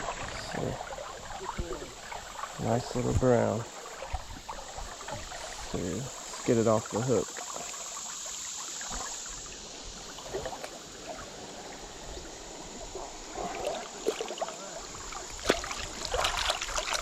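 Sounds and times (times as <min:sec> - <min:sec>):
river water running: 0:00.0 - 0:17.0
water splashes: 0:00.0 - 0:17.0.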